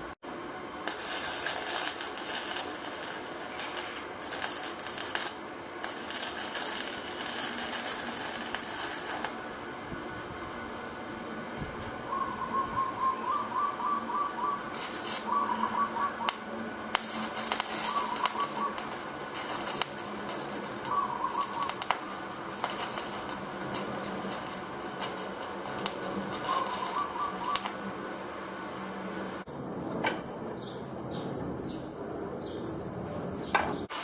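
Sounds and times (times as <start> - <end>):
hissy rasping: 0.8 - 29.5
rapid chirps: 0.9 - 9.4, 12.1 - 27.9.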